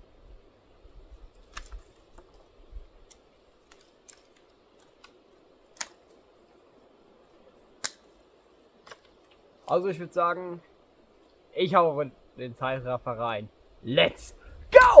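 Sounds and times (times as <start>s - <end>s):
small twigs snapping: 1.4s - 2.3s, 3.0s - 6.1s.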